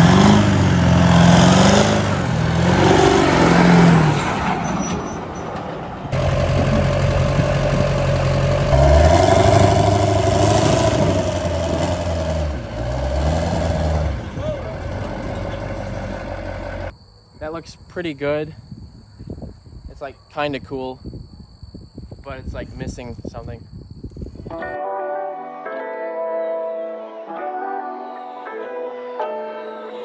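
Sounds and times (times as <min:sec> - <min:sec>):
truck engine revving: 0:00.0 - 0:16.9.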